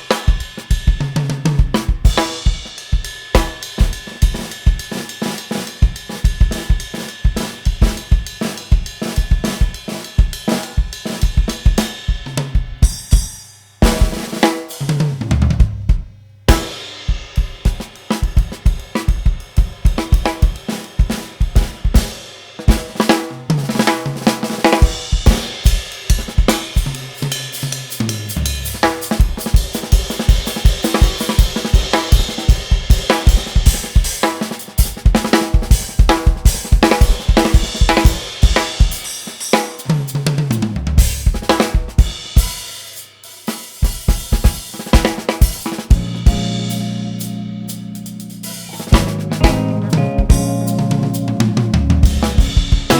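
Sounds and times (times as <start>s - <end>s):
drum kit: 0.0s - 52.9s
jazz fusion band playing: 26.4s - 30.0s, 45.5s - 52.9s
low sliding bass line: 28.1s - 29.0s, 46.0s - 52.9s.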